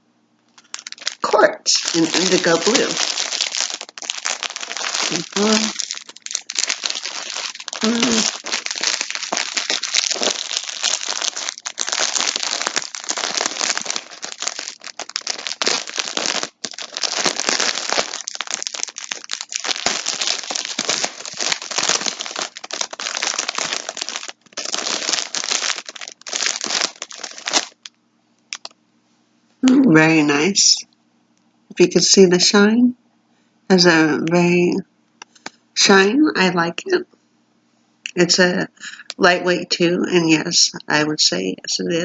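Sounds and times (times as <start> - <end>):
crinkly packaging rustling: 0.6 - 27.9, 28.5 - 28.7.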